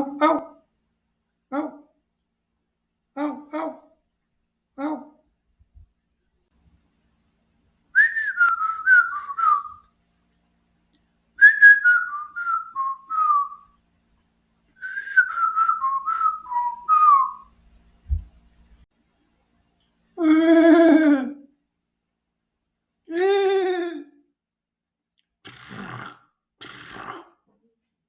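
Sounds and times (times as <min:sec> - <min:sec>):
person whistling: 0:08.0 - 0:09.8, 0:11.4 - 0:13.6, 0:14.8 - 0:17.5.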